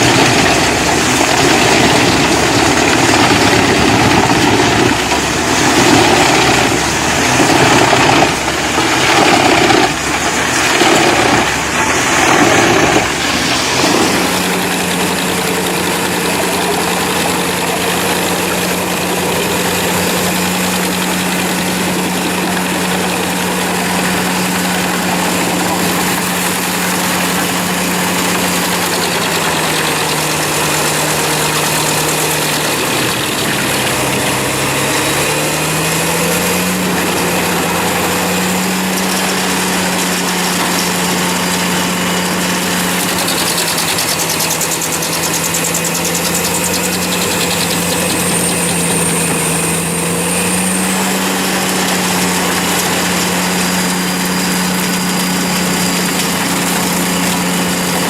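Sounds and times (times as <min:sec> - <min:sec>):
wood chipper engine running: 0:00.0 - 0:58.0.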